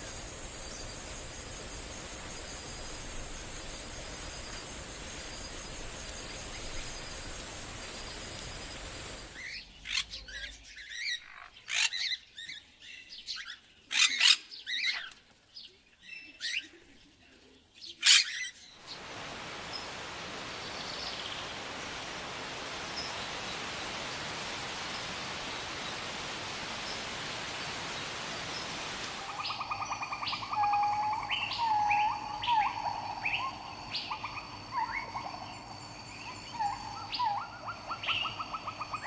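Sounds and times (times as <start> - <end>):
high insect-like whine: 0.0 - 9.5, 18.9 - 39.0
steady hiss: 0.0 - 9.8, 18.8 - 39.0.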